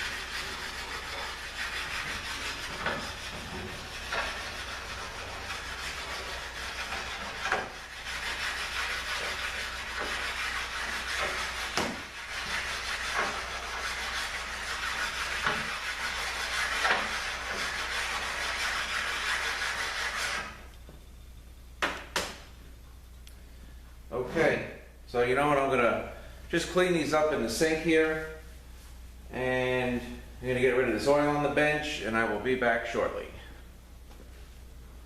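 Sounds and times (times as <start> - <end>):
metal rubbing on sanding stone: 0.0 - 20.7.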